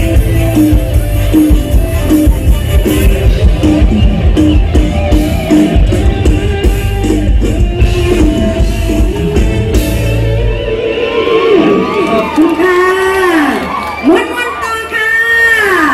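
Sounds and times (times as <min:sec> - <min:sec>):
drum kit: 0:00.0 - 0:11.8
electric guitar: 0:00.0 - 0:14.7
bass: 0:00.0 - 0:15.9
live band music: 0:00.0 - 0:15.9.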